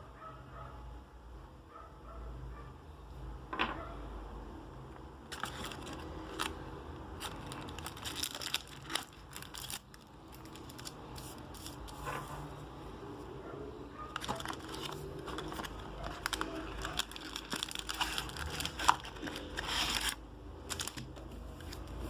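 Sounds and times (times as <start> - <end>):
packaging crinkling and tearing: 5.3 - 12.0, 14.2 - 21.9.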